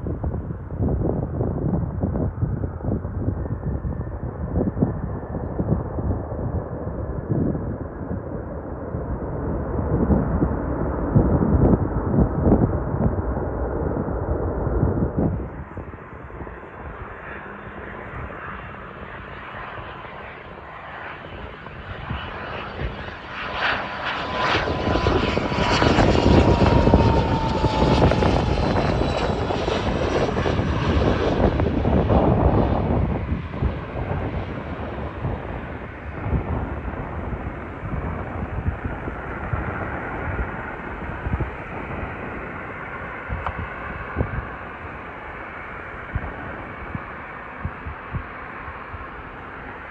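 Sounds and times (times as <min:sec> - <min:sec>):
jet engine rumble: 0:00.0 - 0:49.9
jet passing overhead: 0:00.0 - 0:49.9.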